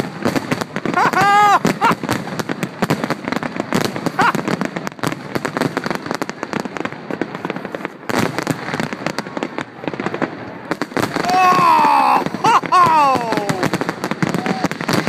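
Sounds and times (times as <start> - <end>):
fireworks crackling and banging: 0.0 - 15.0.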